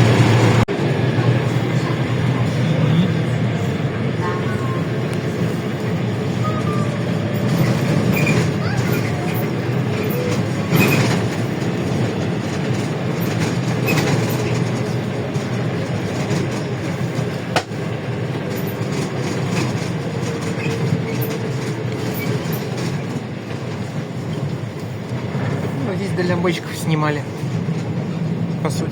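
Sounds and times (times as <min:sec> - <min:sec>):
bus body rattling and clicking: 0:00.0 - 0:28.9
bus engine and road drone: 0:00.0 - 0:28.9.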